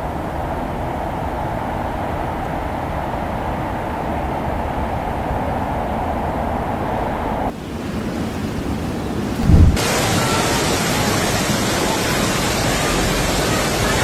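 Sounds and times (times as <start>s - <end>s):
storm rushing noise: 9.3s - 10.0s
heavy low thump: 9.4s - 9.8s.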